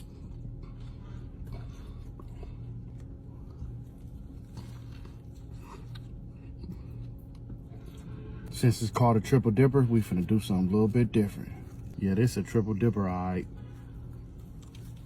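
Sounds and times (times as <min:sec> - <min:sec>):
person chewing food: 0:00.0 - 0:08.5, 0:13.6 - 0:15.0
low electrical hum: 0:00.0 - 0:15.0.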